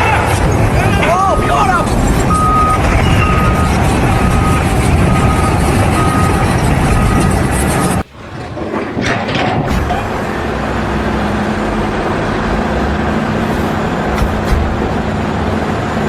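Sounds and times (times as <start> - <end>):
engine running steadily: 0.0 - 16.0
short knocks: 14.0 - 15.2.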